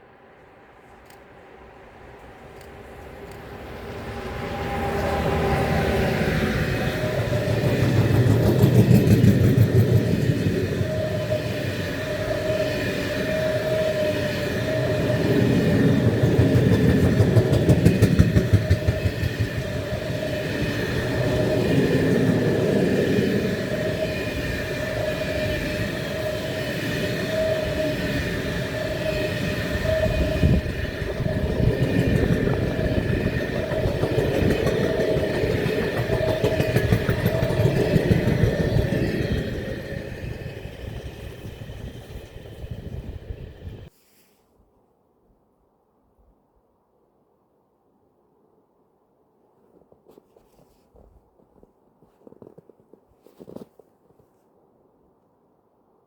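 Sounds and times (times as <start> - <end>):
wavering whine: 0.9 - 43.9
train wheels rumbling and clattering: 1.9 - 43.9.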